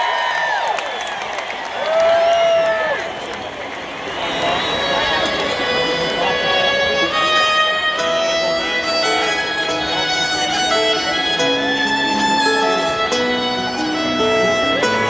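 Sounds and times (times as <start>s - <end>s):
guitar accompaniment: 4.3s - 15.0s
fiddle melody: 5.1s - 15.0s.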